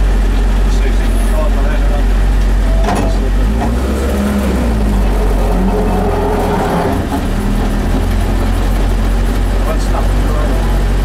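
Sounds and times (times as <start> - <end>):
car engine idling in cabin: 0.0 - 3.8, 6.8 - 11.0.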